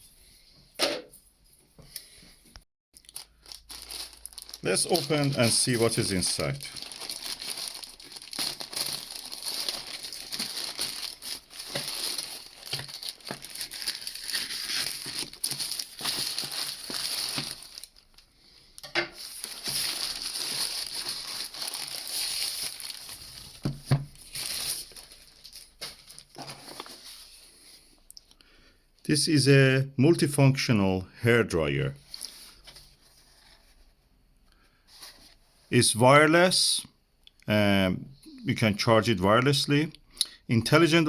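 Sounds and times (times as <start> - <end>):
packaging crinkling and rustling: 3.0 - 18.3, 19.2 - 27.6, 32.0 - 33.8.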